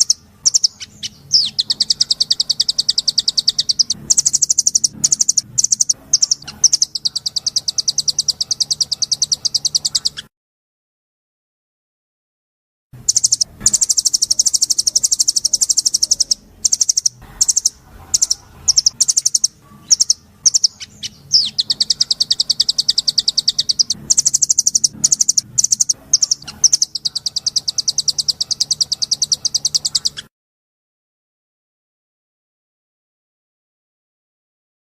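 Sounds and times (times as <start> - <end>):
songbird trilling: 0.0 - 10.3, 13.0 - 30.3
faint low hum: 13.0 - 30.2.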